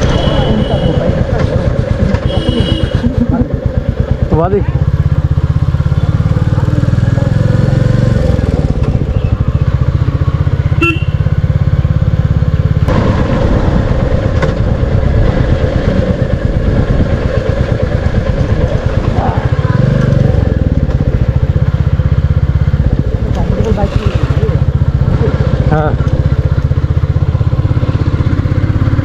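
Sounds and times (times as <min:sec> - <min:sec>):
motorcycle engine thumping: 0:07.9 - 0:29.0.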